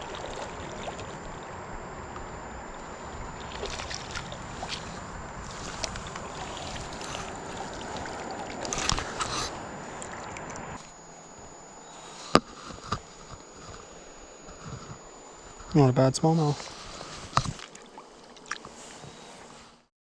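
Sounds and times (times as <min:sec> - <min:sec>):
stream water rushing: 0:00.0 - 0:13.8.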